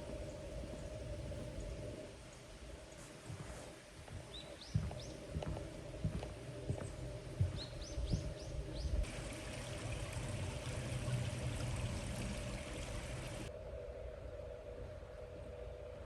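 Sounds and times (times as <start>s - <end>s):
liquid pouring: 9.0s - 13.5s.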